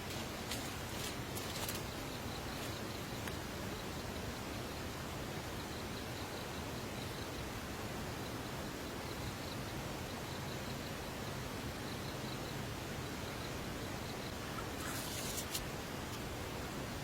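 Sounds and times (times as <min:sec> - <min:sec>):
rustle with clicks: 0:00.0 - 0:03.4, 0:14.6 - 0:16.3
outdoor background hiss: 0:00.0 - 0:17.0.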